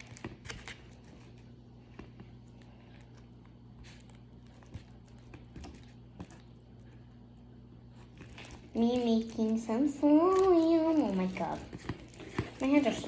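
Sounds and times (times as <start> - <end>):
slime squelching: 0.0 - 13.0.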